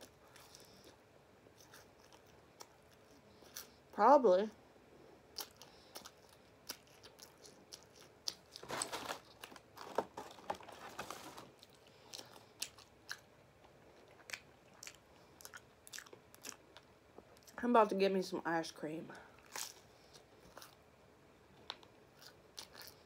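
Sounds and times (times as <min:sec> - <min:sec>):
person chewing crisp food: 0:00.0 - 0:03.9, 0:05.2 - 0:17.6, 0:19.3 - 0:20.9, 0:21.5 - 0:23.0.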